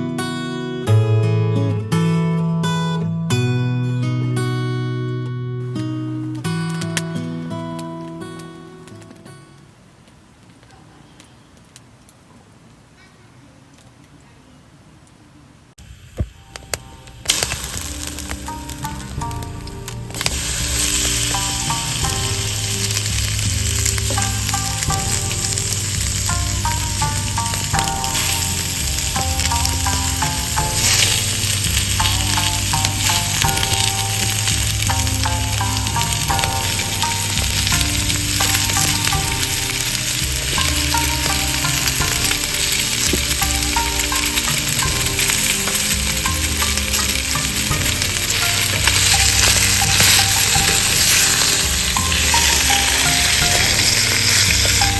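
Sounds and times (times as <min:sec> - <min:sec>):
background music: 0:00.0 - 0:09.5, 0:16.3 - 0:54.9
food sizzling in a pan: 0:15.8 - 0:54.9.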